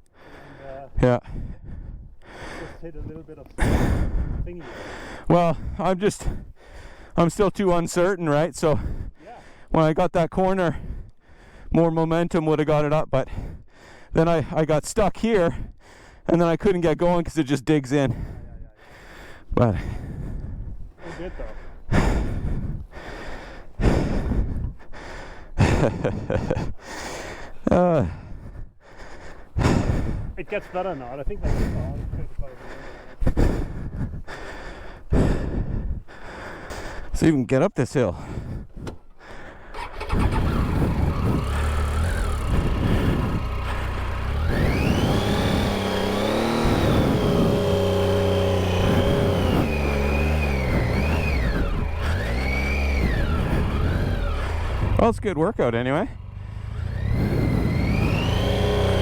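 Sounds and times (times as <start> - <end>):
person breathing hard: 0.0 - 7.2, 8.8 - 9.8, 10.7 - 11.8, 13.3 - 14.2, 15.6 - 16.3, 18.1 - 37.2, 38.1 - 55.0
motorcycle engine revving: 38.7 - 59.0.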